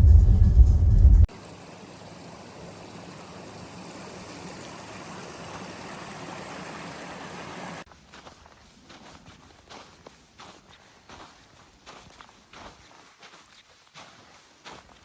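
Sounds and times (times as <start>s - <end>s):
stream water flowing: 1.3s - 7.9s.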